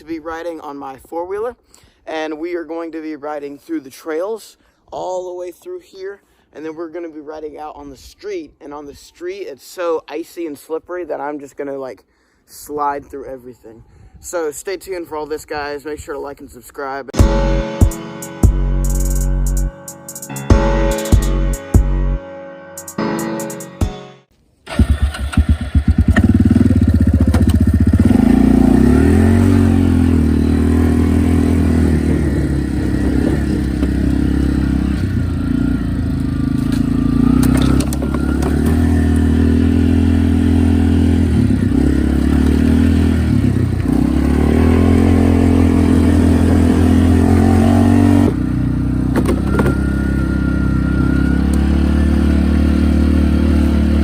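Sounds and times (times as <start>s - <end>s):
atv engine revving: 24.7s - 54.0s.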